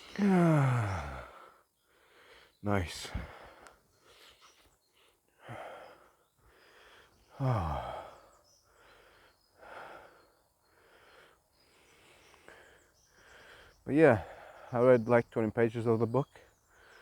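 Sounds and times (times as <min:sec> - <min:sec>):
man sighing: 0:00.0 - 0:01.5, 0:07.3 - 0:08.2
man breathing heavily: 0:00.0 - 0:14.7.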